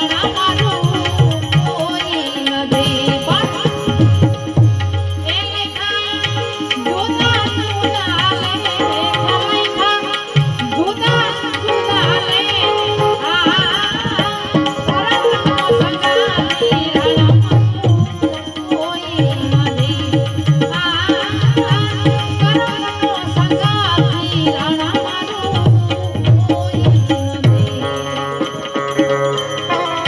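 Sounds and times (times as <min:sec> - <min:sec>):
devotional music with tabla: 0:00.0 - 0:30.0.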